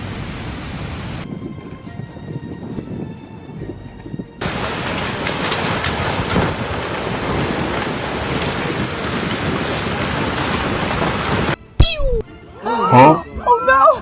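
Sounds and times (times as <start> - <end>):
floodwater rushing: 0.0 - 1.3, 4.4 - 11.6.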